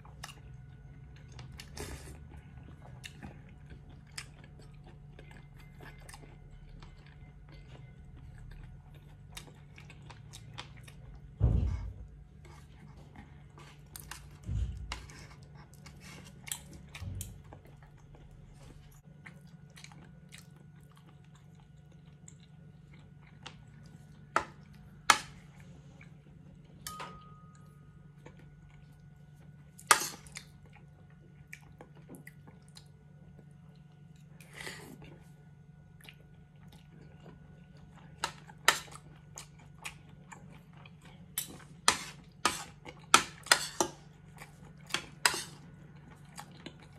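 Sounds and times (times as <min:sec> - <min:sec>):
close-up chewing: 0:00.0 - 0:46.9
steady low hum: 0:00.0 - 0:46.9.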